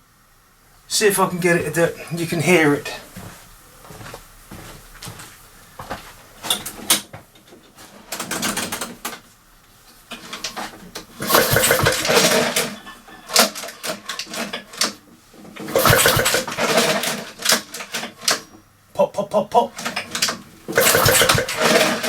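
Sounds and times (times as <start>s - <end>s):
lawnmower engine popping on pull cord: 11.2s - 18.4s, 19.8s - 22.0s.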